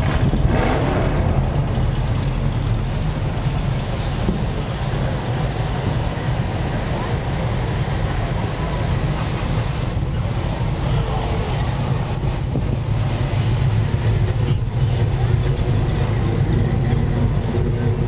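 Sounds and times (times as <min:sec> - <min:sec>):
car engines rumbling past: 0:00.0 - 0:18.0
higher squeak: 0:05.2 - 0:13.1, 0:14.1 - 0:14.9.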